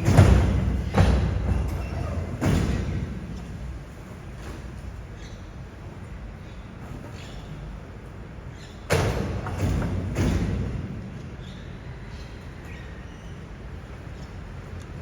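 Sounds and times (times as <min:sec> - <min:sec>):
loud knocks: 0:00.0 - 0:03.4
garbage truck running: 0:00.0 - 0:05.1.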